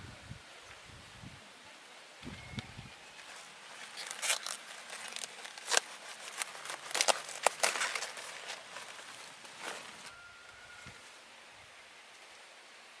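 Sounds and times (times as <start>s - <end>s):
crackling and rustling: 2.9s - 11.3s.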